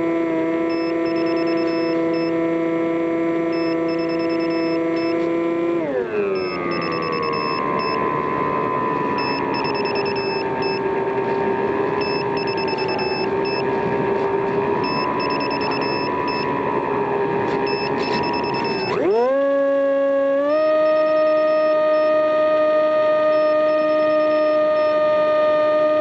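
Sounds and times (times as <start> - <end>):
faint high beeping: 0.7 - 2.3, 3.5 - 5.2, 6.3 - 8.1, 9.2 - 10.9, 12.0 - 13.7, 14.8 - 16.5, 17.7 - 19.0, 20.9 - 22.3, 23.1 - 25.0.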